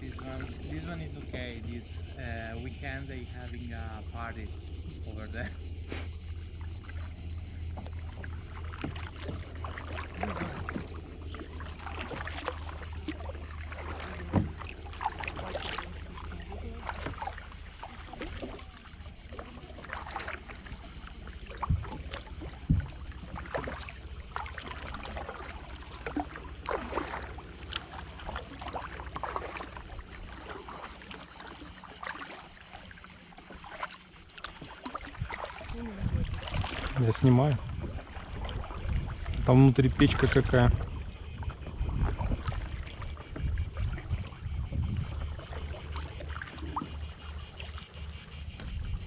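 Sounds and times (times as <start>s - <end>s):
low hum: 0.0s - 30.7s
paddle splashing in water: 0.0s - 49.0s.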